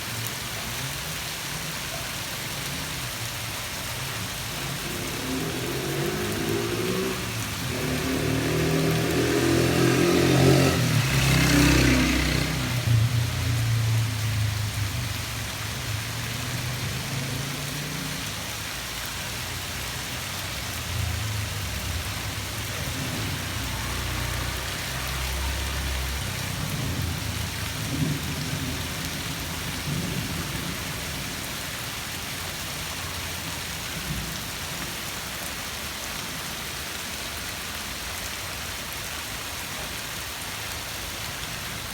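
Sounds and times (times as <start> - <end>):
steady rain: 0.0 - 41.9.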